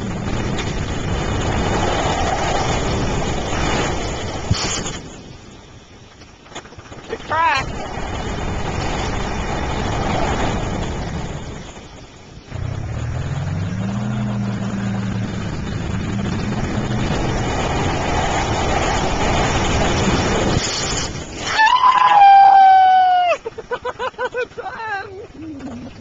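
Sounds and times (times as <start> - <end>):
tractor engine under load: 6.5 - 21.4.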